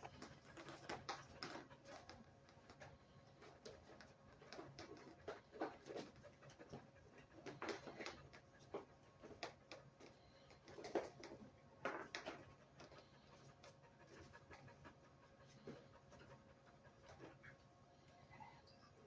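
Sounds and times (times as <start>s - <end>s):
dog panting: 0.0s - 19.0s.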